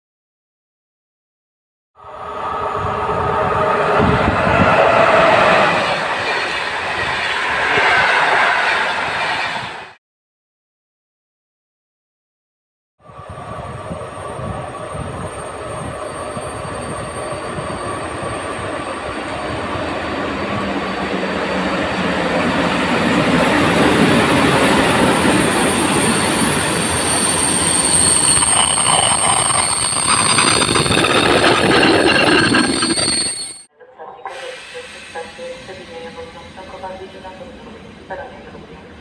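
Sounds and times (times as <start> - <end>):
train wheels rumbling on rail: 13.0 - 33.5
high wheel squeal: 14.6 - 23.5, 24.3 - 33.7.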